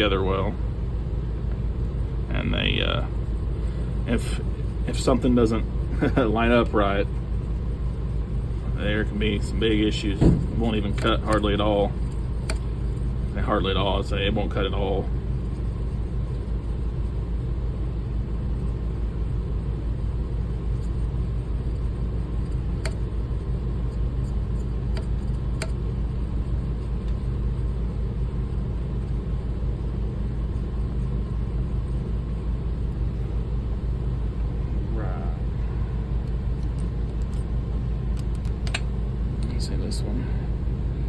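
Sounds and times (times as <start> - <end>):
electric motor humming: 1.5 - 34.0.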